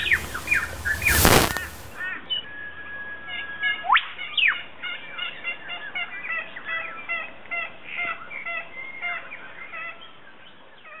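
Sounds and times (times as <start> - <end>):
birds chirping: 0.0 - 3.6.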